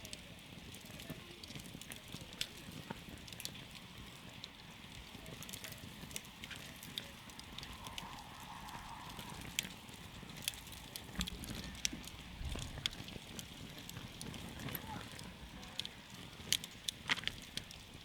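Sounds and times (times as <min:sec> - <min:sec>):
campfire crackling and popping: 0:00.0 - 0:18.0
low rumble of flames: 0:00.0 - 0:18.0.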